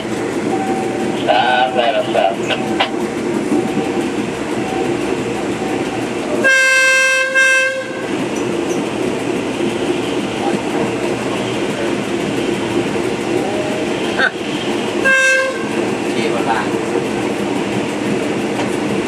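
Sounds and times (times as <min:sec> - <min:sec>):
train wheels rumbling on rail: 0:00.0 - 0:19.0
train horn blasts: 0:06.4 - 0:08.1, 0:15.0 - 0:15.8.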